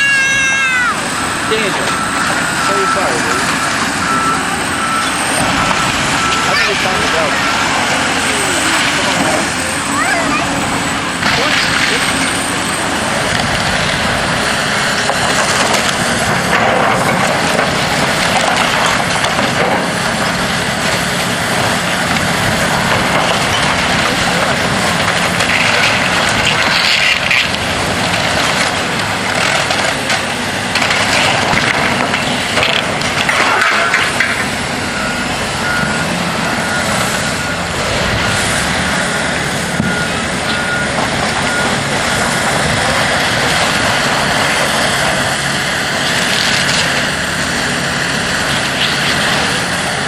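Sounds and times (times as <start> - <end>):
heavy demolition machinery running: 0.0 - 50.0
reversing alarm beeping: 0.1 - 15.0, 34.8 - 42.8
debris crunching and crashing: 1.2 - 50.0.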